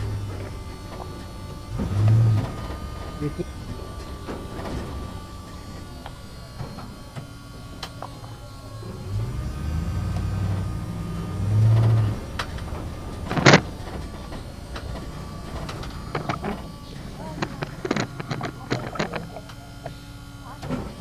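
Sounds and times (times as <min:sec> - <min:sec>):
backhoe engine running: 0:00.0 - 0:21.0.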